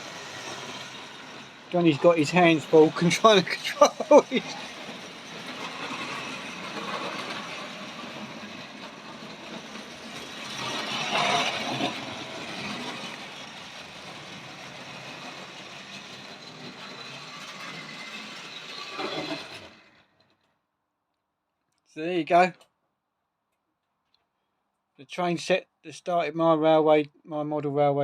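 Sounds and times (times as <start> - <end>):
model train running on track: 0.0 - 20.2.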